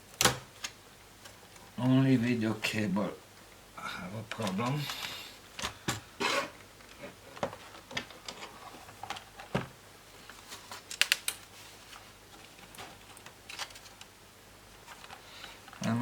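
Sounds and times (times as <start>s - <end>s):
plastic laptop parts clicking: 10.8s - 11.4s.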